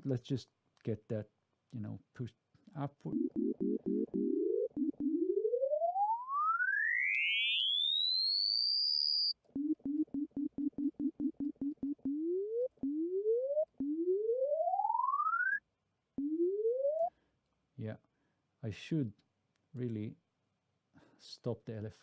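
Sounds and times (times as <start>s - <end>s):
short repeated low synth notes: 2.8s - 6.8s, 9.5s - 15.6s, 16.2s - 17.1s
synthesizer tone sweeping upward: 3.0s - 15.6s, 16.2s - 17.1s.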